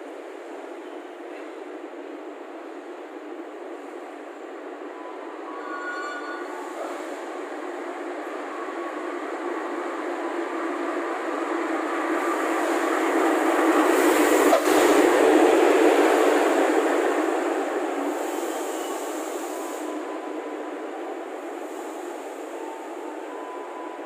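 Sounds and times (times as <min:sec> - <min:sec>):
diesel locomotive passing: 0:00.0 - 0:24.0.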